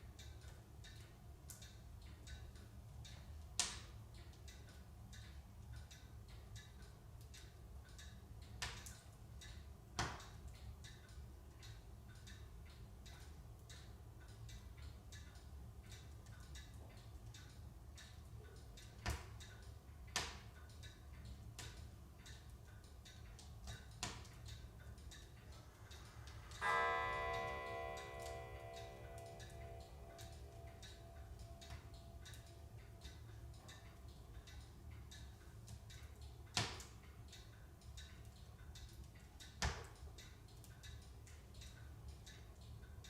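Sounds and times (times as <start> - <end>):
light ticking: 0.0 - 43.0
logs crackling in a stove: 0.0 - 43.0
piano chord ringing: 26.6 - 31.6.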